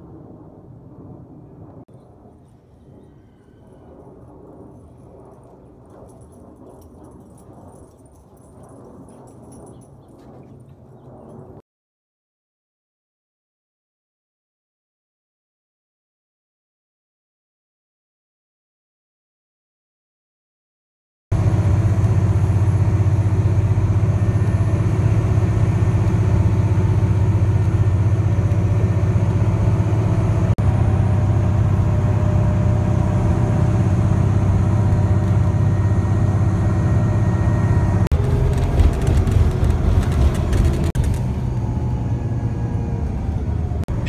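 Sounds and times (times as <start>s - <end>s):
engine rumble: 21.3s - 44.0s
crackling: 38.1s - 41.4s.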